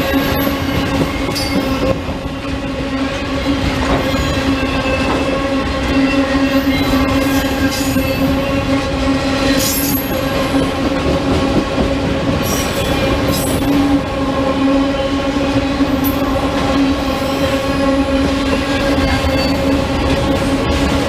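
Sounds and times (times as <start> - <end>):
train rolling by: 0.0 - 21.0
wheel squeals: 18.6 - 20.2.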